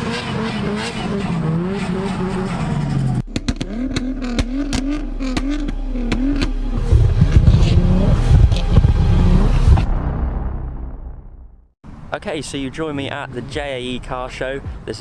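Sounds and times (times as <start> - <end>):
car engine revving: 0.0 - 11.6
exhaust pops and bangs: 0.0 - 11.6.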